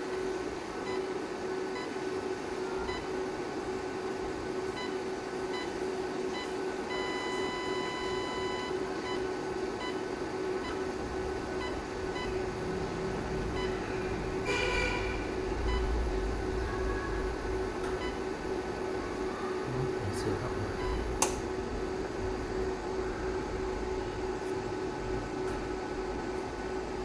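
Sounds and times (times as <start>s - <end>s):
steady hum: 0.0s - 27.0s
electronic beeping: 0.8s - 3.2s, 4.5s - 21.4s.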